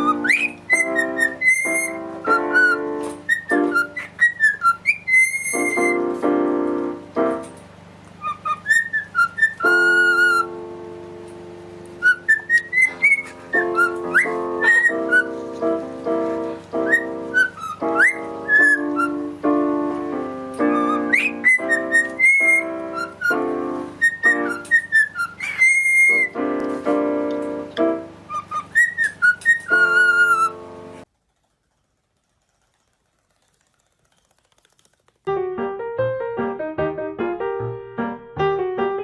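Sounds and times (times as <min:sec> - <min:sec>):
music with sustained chords: 0:09.7 - 0:24.7.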